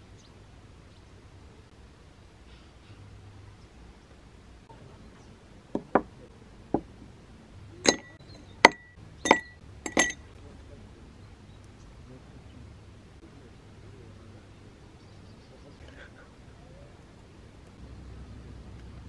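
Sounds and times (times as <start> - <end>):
light knocks: 5.7 - 7.0
hard objects clinking: 7.8 - 10.3.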